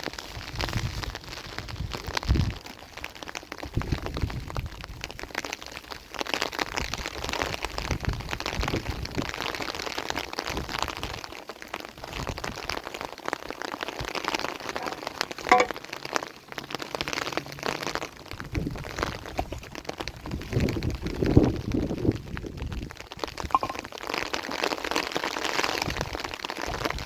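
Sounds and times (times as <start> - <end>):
rain pattering on a surface: 0.0 - 27.0
brief high-pitched tone: 23.6 - 23.8.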